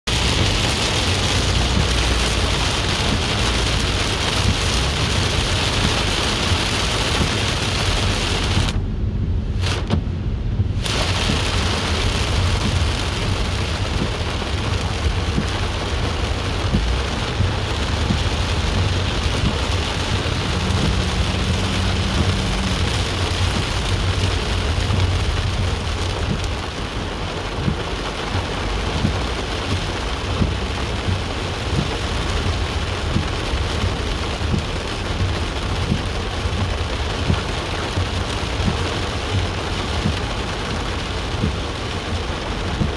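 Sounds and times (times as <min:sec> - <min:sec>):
heavy rain: 0:00.0 - 0:42.9
low rumble: 0:00.1 - 0:38.4
low hum: 0:08.6 - 0:10.9.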